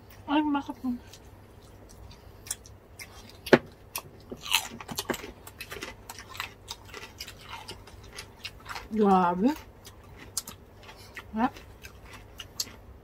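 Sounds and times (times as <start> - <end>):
crunching crispy pork skin: 3.0 - 12.8.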